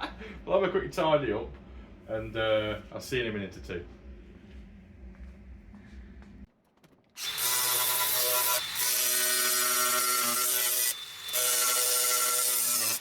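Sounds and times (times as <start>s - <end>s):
power tool grinding steel: 7.2s - 13.0s.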